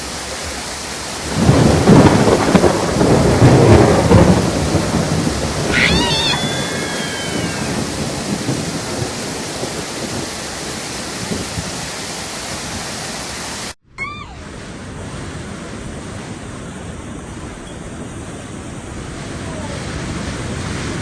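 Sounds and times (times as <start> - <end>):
heavy rain and floodwater rushing: 0.0 - 21.0
brief high-pitched cry: 5.7 - 7.9, 14.0 - 14.5.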